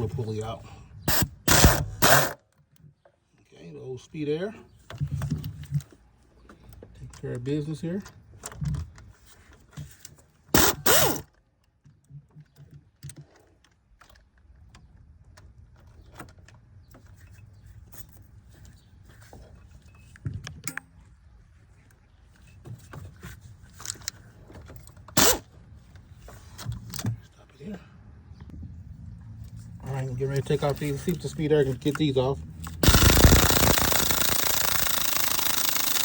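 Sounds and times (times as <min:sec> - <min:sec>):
air impact wrench bursts: 0:01.1 - 0:02.4, 0:10.6 - 0:11.2, 0:25.2 - 0:25.4, 0:32.8 - 0:36.0
tools clinking: 0:31.8 - 0:36.0.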